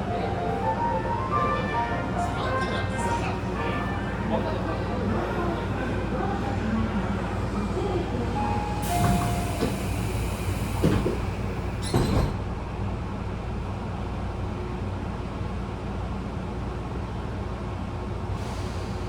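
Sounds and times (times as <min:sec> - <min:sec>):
train car low hum: 0:00.0 - 0:19.0
air hiss of train doors: 0:08.5 - 0:12.4, 0:18.4 - 0:19.0
sliding doors thudding: 0:08.8 - 0:12.5.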